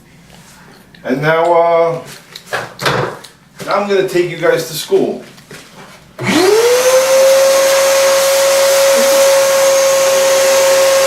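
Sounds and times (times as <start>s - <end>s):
shop vacuum motor running: 6.2s - 11.0s.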